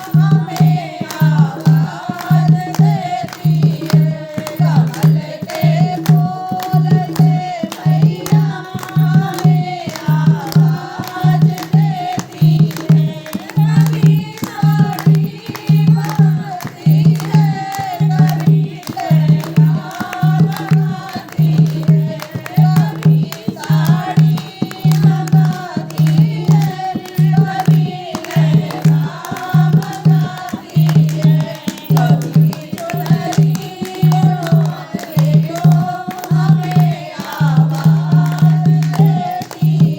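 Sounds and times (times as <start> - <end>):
devotional singing: 0.0 - 39.9
steady drum beat: 0.0 - 39.9.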